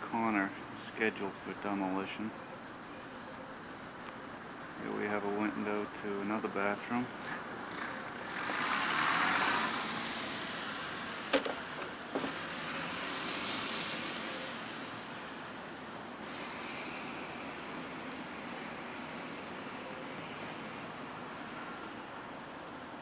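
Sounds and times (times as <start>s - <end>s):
vehicle passing by: 4.8s - 22.8s.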